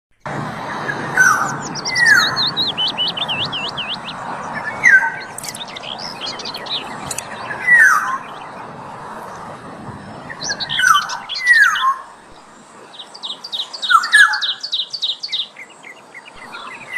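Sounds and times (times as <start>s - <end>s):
oriole downward-slurred calls: 10.2s - 16.9s.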